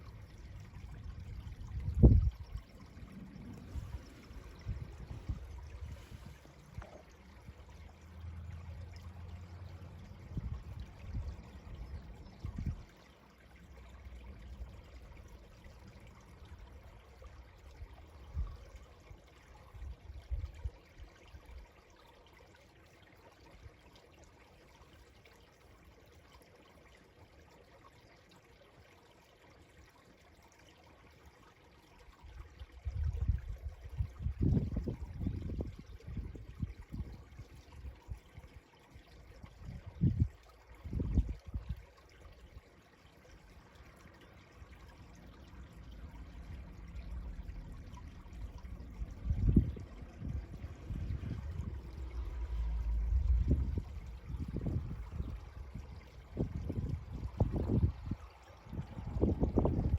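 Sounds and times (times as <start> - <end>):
stream trickling: 0.0 - 59.9
low rumbling bumps: 46.5 - 55.7.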